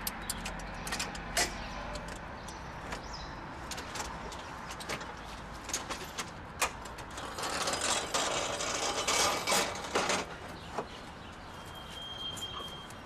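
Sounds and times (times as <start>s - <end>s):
sharp metallic clicks: 0.0s - 3.0s
mechanism rattling and clicking: 0.0s - 10.3s.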